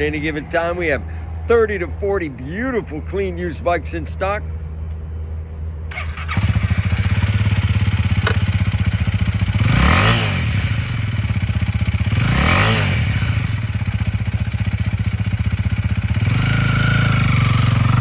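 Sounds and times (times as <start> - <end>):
motorcycle engine idling and blipped: 5.8 - 18.0.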